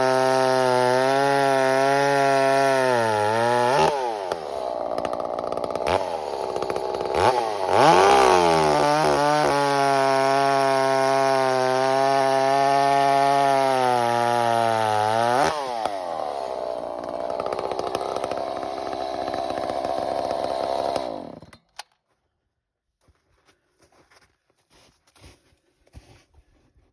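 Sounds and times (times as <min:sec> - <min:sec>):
chainsaw revving and idling: 0:00.0 - 0:21.7.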